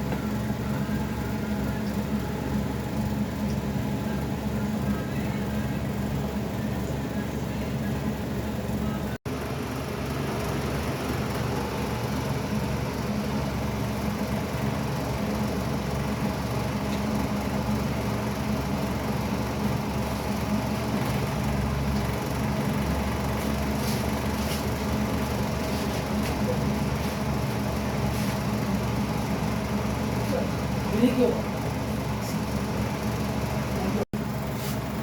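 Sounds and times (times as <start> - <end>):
steady mechanical hum: 0.0 - 35.0.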